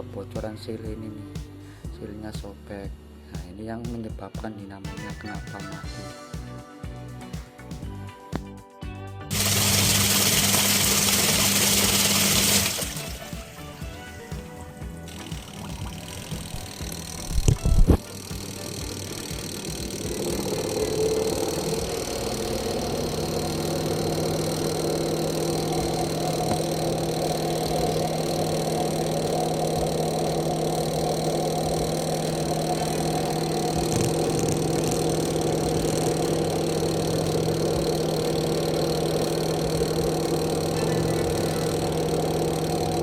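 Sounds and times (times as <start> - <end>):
washing machine motor humming: 9.3 - 43.0.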